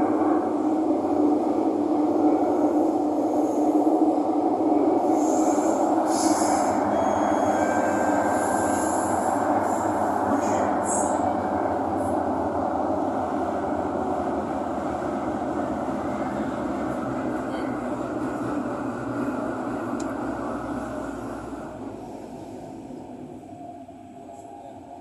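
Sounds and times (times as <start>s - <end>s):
train wheels rumbling on rail: 0.0s - 25.0s
high wheel squeal: 6.1s - 9.2s.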